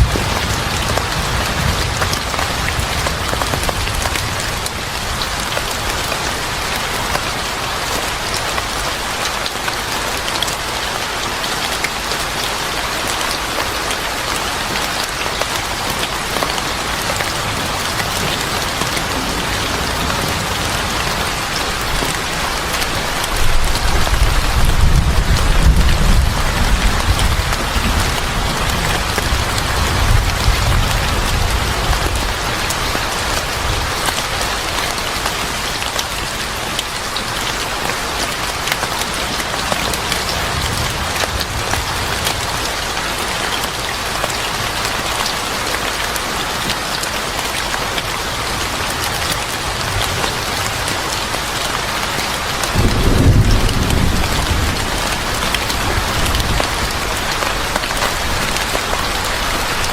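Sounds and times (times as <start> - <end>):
heavy rain falling: 0.0 - 59.9
thunder rumbling: 16.8 - 33.9, 52.6 - 59.2.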